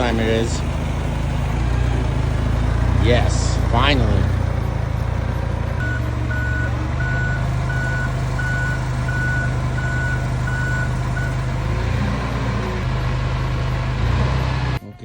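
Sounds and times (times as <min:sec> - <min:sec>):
truck engine running: 0:00.0 - 0:15.0
truck reversing alarm beeps: 0:03.6 - 0:14.8.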